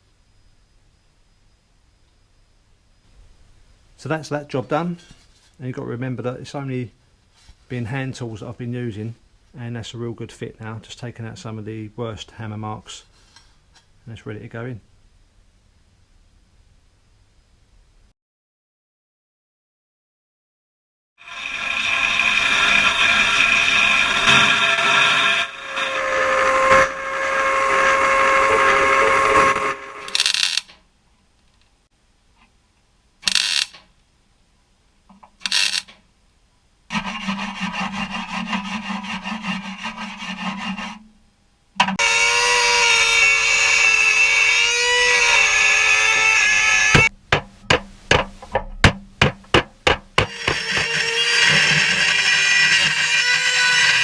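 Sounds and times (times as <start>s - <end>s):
electric power tool whining: 21.2s - 30.6s, 42.0s - 47.1s, 50.2s - 54.0s
hammer on sheet steel: 47.0s - 50.9s.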